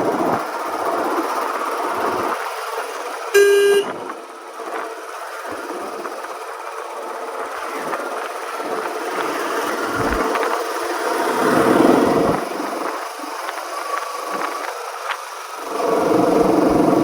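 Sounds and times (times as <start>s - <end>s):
vehicle horn toot: 3.4s - 4.0s.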